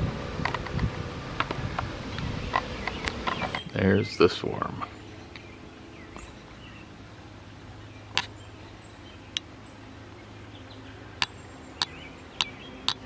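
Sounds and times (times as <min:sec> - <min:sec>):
bee swarm buzzing: 0:00.0 - 0:03.6.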